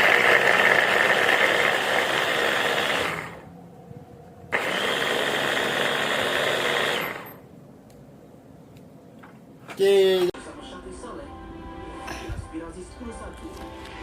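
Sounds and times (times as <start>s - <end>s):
electric chopper running: 0.0s - 3.5s, 4.5s - 7.4s.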